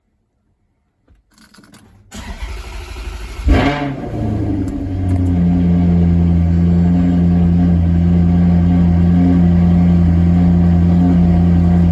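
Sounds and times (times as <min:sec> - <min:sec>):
car starter cranking: 0:01.6 - 0:07.9
car engine starting and idling: 0:02.1 - 0:11.9.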